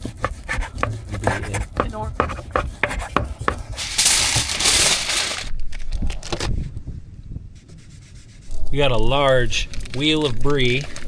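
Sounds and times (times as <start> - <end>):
loud rustling crinkle: 0.0 - 5.8.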